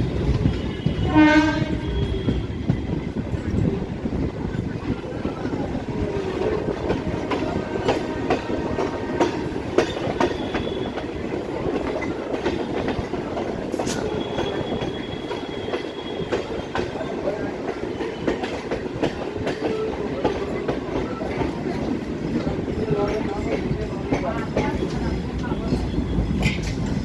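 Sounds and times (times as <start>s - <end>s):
train rumbling: 0.0s - 27.0s.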